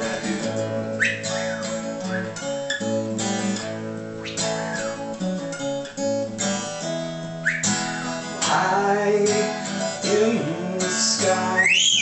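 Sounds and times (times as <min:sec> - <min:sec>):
person singing: 0:00.0 - 0:01.4, 0:08.4 - 0:12.0
acoustic guitar strumming: 0:00.0 - 0:12.0.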